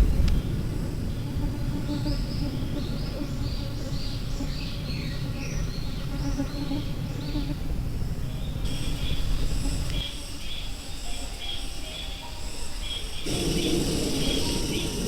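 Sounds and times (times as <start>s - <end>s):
low rumble: 0.0s - 1.2s, 13.3s - 15.0s.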